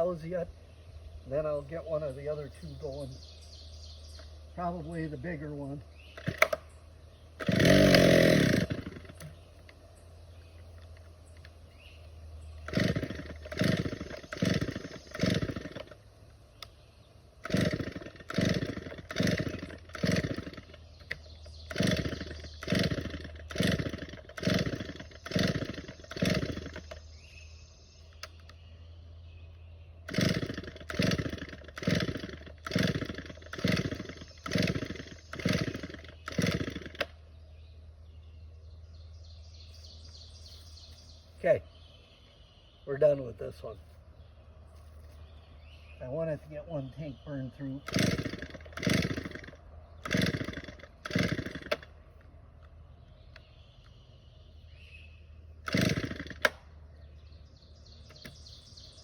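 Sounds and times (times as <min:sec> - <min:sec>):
chainsaw idling and revving: 0:01.4 - 0:09.8, 0:12.3 - 0:27.3, 0:30.0 - 0:38.2, 0:46.0 - 0:52.3, 0:55.5 - 0:59.0.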